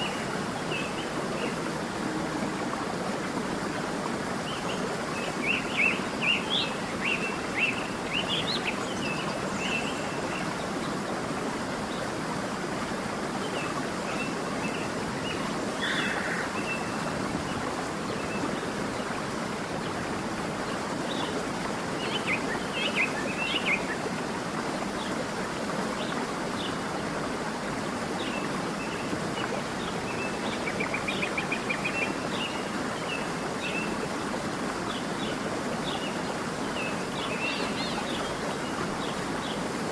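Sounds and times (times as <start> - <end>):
stream water rushing: 0.0 - 39.9
small birds chirping: 14.6 - 17.1.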